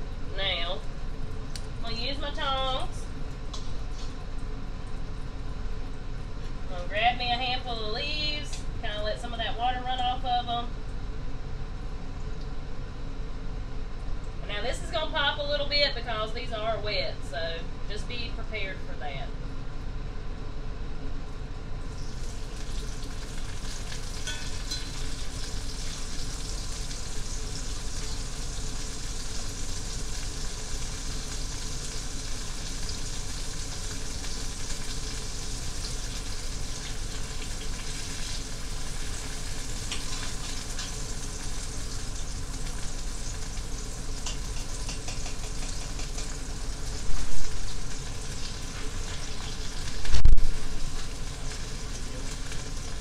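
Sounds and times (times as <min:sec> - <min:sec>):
greens sizzling and popping in grease: 0:00.8 - 0:06.7, 0:21.8 - 0:53.0.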